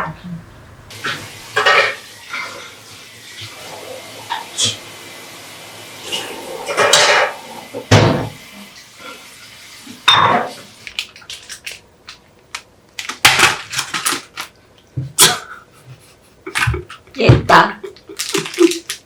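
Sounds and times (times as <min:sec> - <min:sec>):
dishes and utensils clattering: 0:01.0 - 0:02.8, 0:06.0 - 0:08.4, 0:10.0 - 0:11.7.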